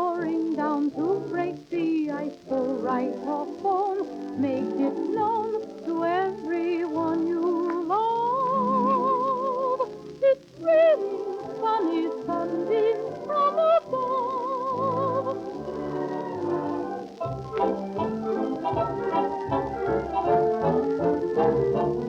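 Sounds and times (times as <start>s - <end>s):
soprano singing: 0.0s - 22.0s
orchestra playing: 15.6s - 22.0s.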